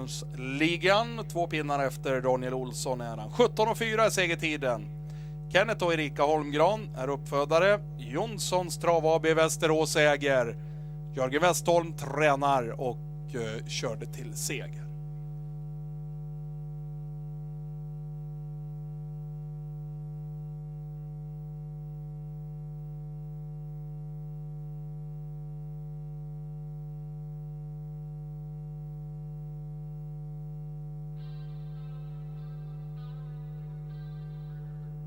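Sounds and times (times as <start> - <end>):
electrical mains hum: 0.0 - 35.0.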